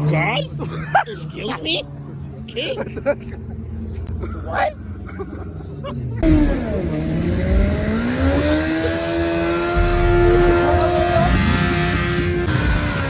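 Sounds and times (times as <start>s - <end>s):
car engine revving: 6.2s - 13.0s.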